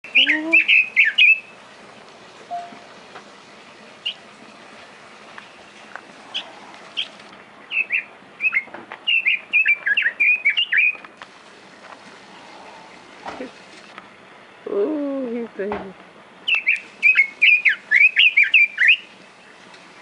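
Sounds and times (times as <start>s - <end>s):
songbird chirping: 0.0s - 1.7s, 5.3s - 11.2s, 16.4s - 19.6s.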